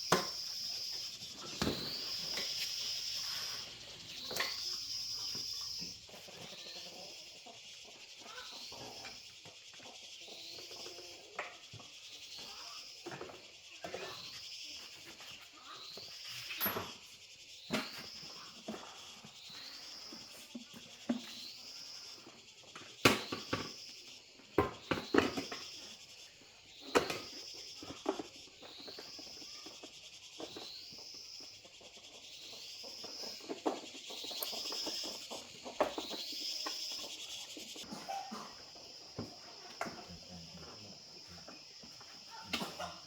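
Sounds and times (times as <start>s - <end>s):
small animal chirping call: 0.0s - 43.0s
sharp knocks and clatters: 24.6s - 25.9s.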